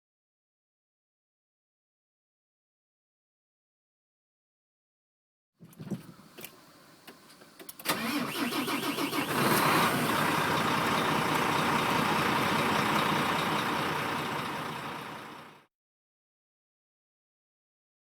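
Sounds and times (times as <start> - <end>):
diesel truck engine starting and running: 6.0 - 15.7.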